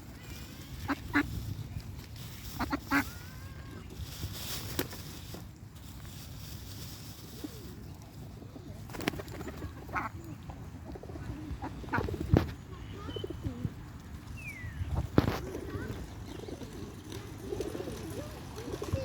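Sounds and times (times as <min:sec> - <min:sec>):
birds calling: 0:14.3 - 0:19.0.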